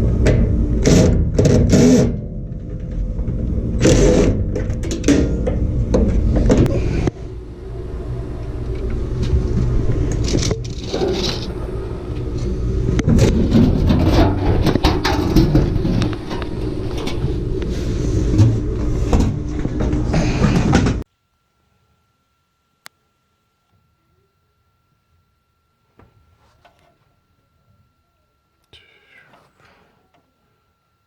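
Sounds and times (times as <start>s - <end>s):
steady low hum: 0.0s - 31.0s
sheet metal knocks and scraping: 13.0s - 17.2s.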